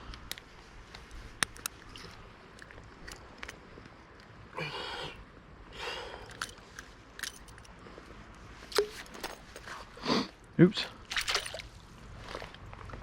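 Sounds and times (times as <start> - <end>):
small handling clicks: 0.0 - 3.6.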